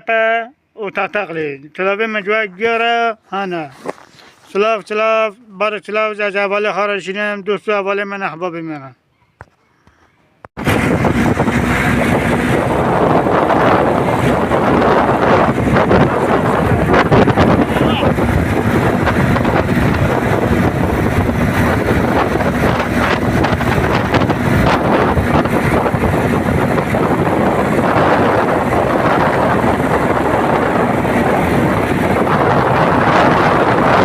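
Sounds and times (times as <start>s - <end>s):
wind buffeting microphone: 10.6s - 34.0s.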